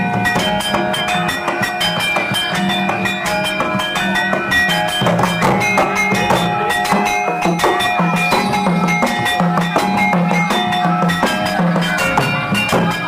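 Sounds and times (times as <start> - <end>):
gamelan ensemble music: 0.0 - 13.0.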